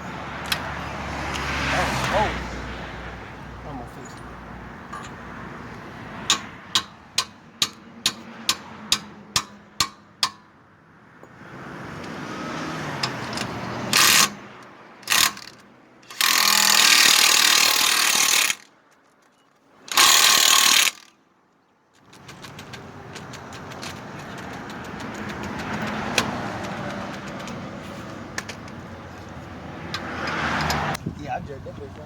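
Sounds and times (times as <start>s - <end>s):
impact wrench running: 13.9s - 14.4s, 15.0s - 18.7s, 19.9s - 21.1s.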